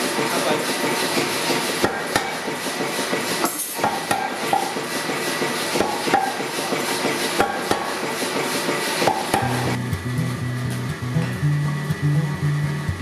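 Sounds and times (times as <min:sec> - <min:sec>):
hammer striking steel anvil: 0:01.8 - 0:02.4, 0:03.4 - 0:04.8, 0:05.8 - 0:06.5, 0:07.4 - 0:08.0, 0:09.0 - 0:09.8.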